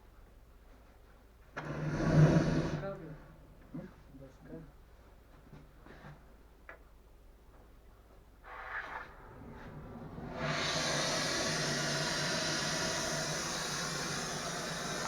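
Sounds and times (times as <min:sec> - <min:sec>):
loud steady torch hiss: 0:01.6 - 0:03.4, 0:08.5 - 0:15.0
burst of noise: 0:09.2 - 0:15.0.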